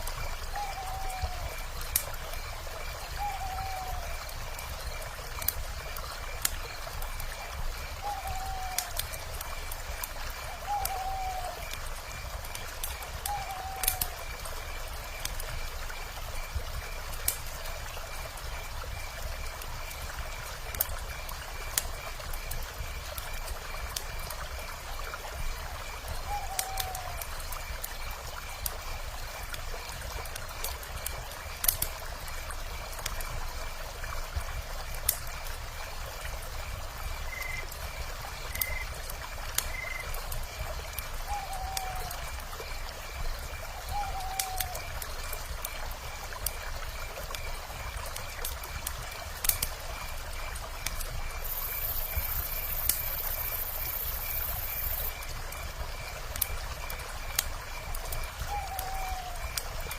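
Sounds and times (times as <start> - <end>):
wood fire crackling and popping: 0.0 - 59.9
owl calling: 3.2 - 4.1, 8.0 - 9.0, 10.7 - 11.6, 13.3 - 14.2, 26.3 - 27.2, 41.3 - 42.2, 43.9 - 44.8, 58.5 - 59.4.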